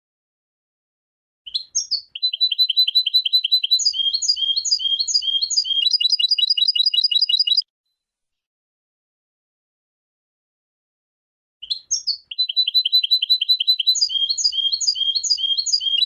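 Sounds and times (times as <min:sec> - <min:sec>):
goldfinch trilling song: 0:01.6 - 0:07.6, 0:11.9 - 0:16.0.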